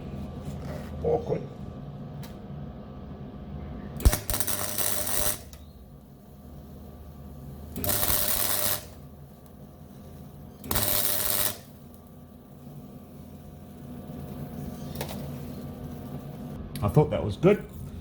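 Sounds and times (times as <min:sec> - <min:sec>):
low steady hum: 0:00.0 - 0:18.0
welding arc crackling: 0:04.0 - 0:16.6.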